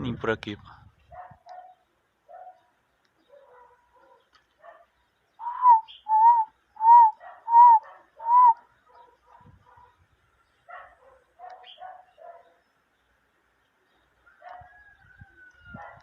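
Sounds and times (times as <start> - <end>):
dove cooing: 5.4 - 9.2.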